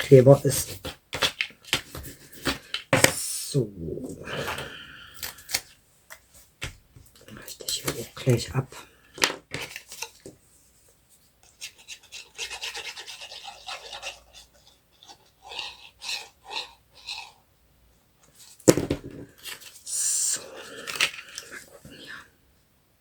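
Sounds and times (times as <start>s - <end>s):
paper rubbing and scraping: 11.5s - 14.4s.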